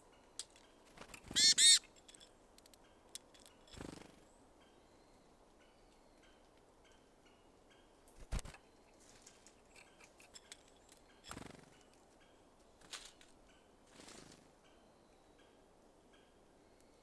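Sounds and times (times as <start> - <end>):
birds pecking seeds: 0.4 - 4.1.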